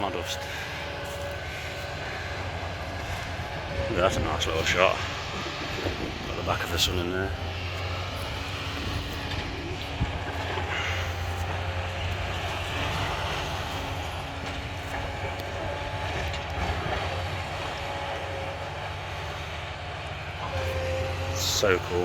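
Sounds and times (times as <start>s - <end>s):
distant excavator diesel engine: 0.0s - 22.0s.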